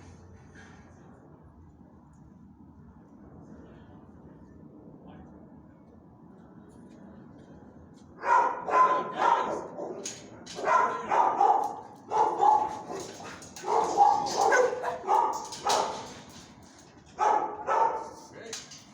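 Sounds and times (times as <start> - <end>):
dog barking: 8.2 - 16.1, 17.2 - 18.2.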